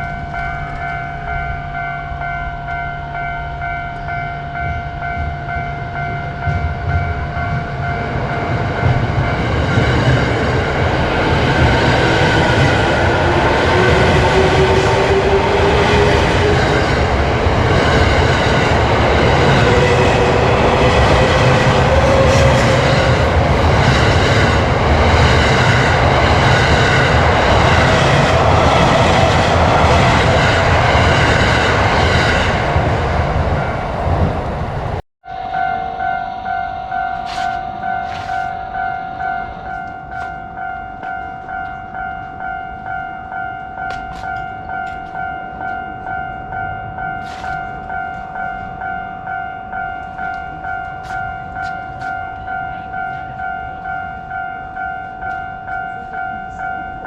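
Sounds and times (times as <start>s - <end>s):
level crossing alarm ringing: 0.0s - 34.1s, 35.2s - 57.0s
train wheels rumbling on rails: 3.8s - 35.5s, 43.6s - 57.0s.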